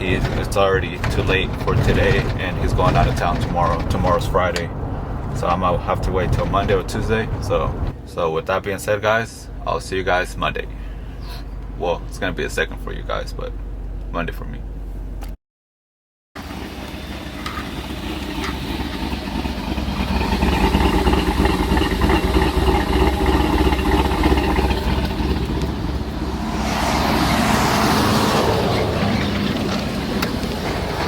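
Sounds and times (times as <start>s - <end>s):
vehicle engine running: 16.4s - 31.0s
broad rushing noise: 22.5s - 31.0s.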